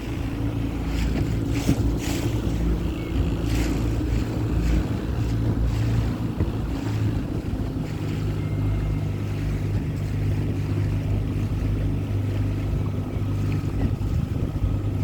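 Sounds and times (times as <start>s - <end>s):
boat motor humming: 0.0s - 15.0s
wind buffeting microphone: 0.0s - 15.0s.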